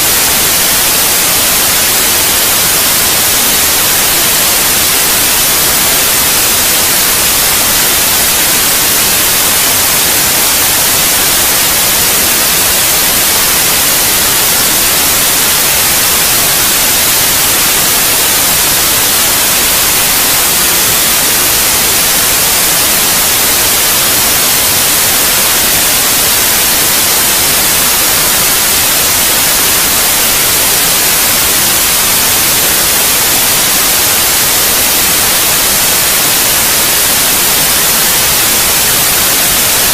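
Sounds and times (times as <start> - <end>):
steady white noise hiss: 0.0 - 39.9.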